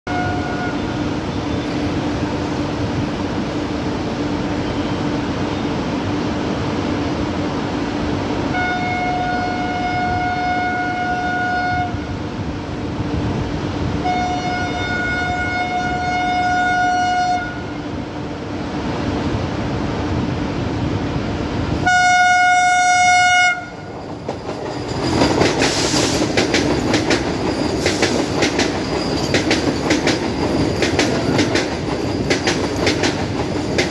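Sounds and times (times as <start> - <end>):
train horn blasts: 0.1 - 1.5, 8.5 - 12.2, 14.0 - 17.9, 21.8 - 23.9
train rumble: 0.1 - 33.9
train rushing past: 0.1 - 33.9
wheels clattering over rail joints: 23.8 - 33.9.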